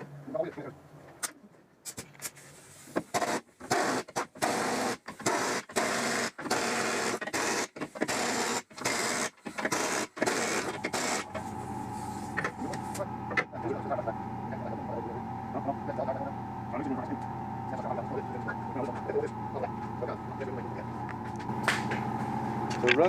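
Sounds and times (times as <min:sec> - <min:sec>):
power tool bursts: 0:03.1 - 0:11.5
steady hum with level tones: 0:10.3 - 0:23.0.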